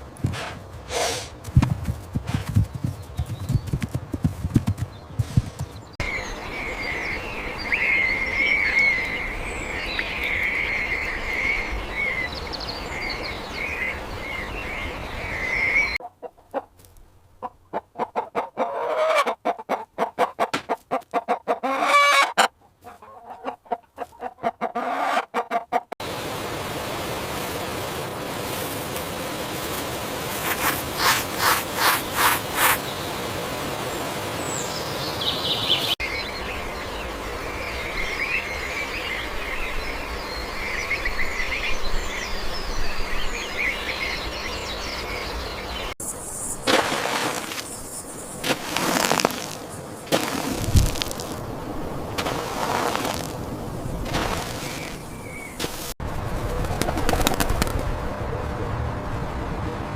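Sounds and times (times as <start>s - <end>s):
knocks and thumps: 1.4s - 5.8s, 20.5s - 20.8s
chickens clucking: 16.0s - 16.8s, 17.4s - 26.0s, 30.4s - 32.8s
steady hiss: 26.0s - 41.2s, 46.0s - 56.0s.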